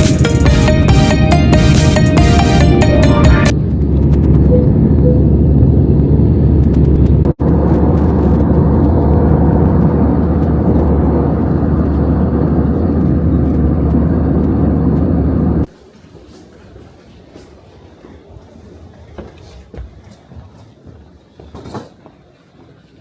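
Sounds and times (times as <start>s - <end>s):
jet engines rumbling in cabin: 0.0s - 15.8s.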